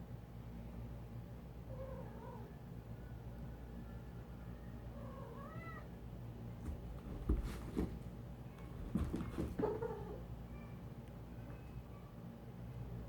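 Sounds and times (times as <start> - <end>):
cat meowing: 5.0 - 5.9.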